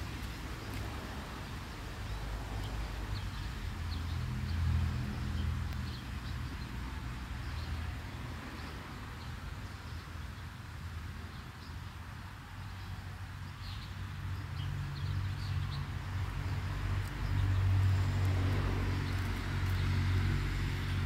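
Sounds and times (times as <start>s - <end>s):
light rain pattering on concrete: 0.0s - 7.5s, 14.8s - 21.0s.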